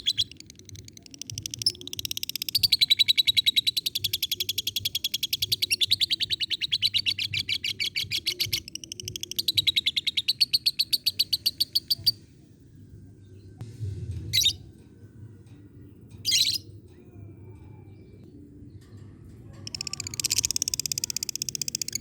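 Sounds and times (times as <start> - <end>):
lovebird chattering: 19.7 - 22.0.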